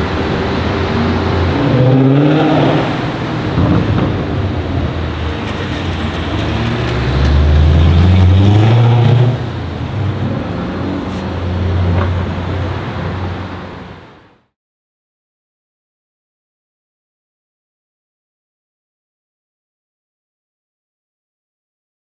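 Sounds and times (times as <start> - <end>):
car engine accelerating: 0.1 - 12.6.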